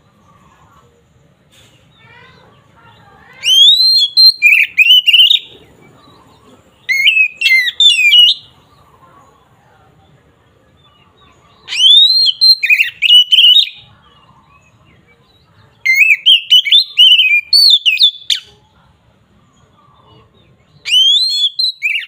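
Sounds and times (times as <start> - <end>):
bird singing whistled notes: 3.4 - 5.5, 6.8 - 8.6, 11.6 - 13.9, 15.8 - 18.5, 20.7 - 22.0.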